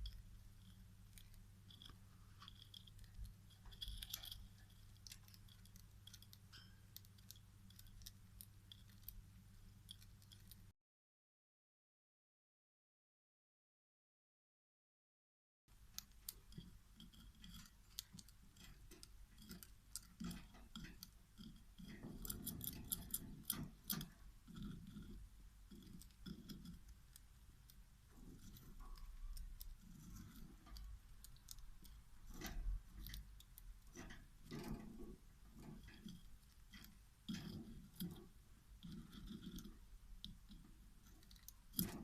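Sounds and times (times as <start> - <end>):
scratching: 0.0 - 10.7, 15.9 - 42.0
light clicks and taps: 15.9 - 42.0.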